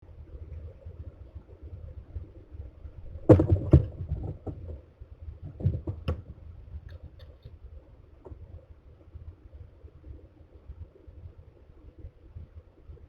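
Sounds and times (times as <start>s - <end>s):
knocks and scrapes on wood: 3.3s - 4.8s, 5.4s - 7.4s.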